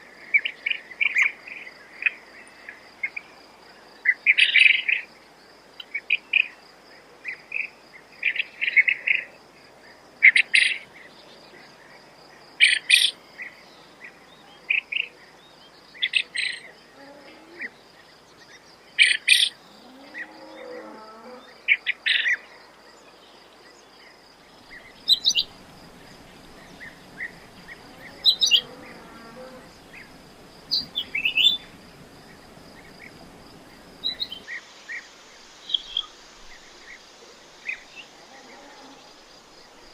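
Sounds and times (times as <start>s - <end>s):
high insect trill: 24.2s - 39.9s
quail calling: 26.4s - 30.0s.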